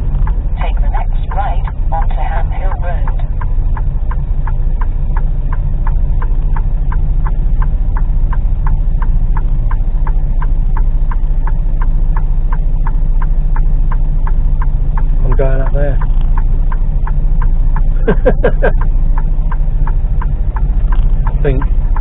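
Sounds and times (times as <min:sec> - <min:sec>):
diesel engine drone: 0:00.0 - 0:22.0
turn indicator ticking: 0:00.0 - 0:22.0.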